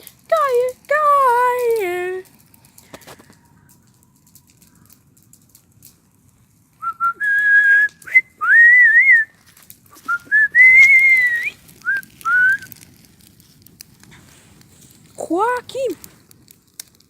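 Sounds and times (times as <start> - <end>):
person whistling a tune: 6.8 - 9.3, 10.0 - 12.7.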